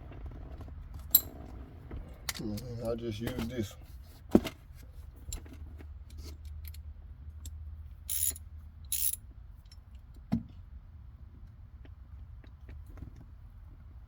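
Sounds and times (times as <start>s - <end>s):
hand ratchet clicking: 8.1s - 9.2s.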